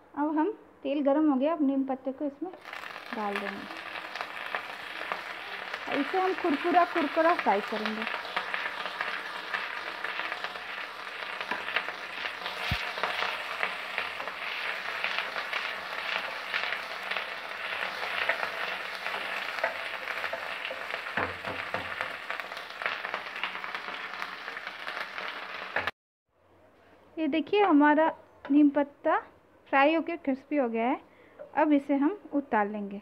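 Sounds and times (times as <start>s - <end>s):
leaves sizzling in hot oil: 2.5s - 25.9s.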